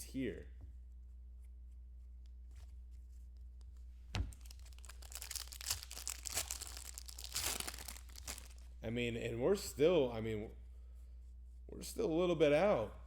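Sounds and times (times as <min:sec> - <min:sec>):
wrapper tearing and crinkling: 0:04.3 - 0:08.7.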